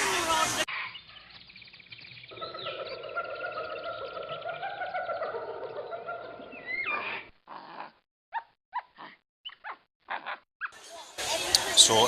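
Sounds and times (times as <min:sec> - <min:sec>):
jungle ambience: 0:00.0 - 0:08.0
whining animal-like calls: 0:02.3 - 0:10.4.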